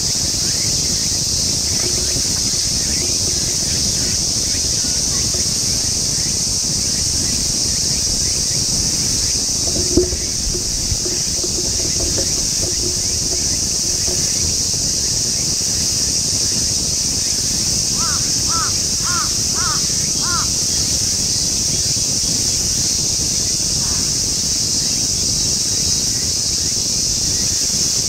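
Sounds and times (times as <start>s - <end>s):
low wind rumble: 0.0s - 23.8s
crow cawing: 18.0s - 20.5s.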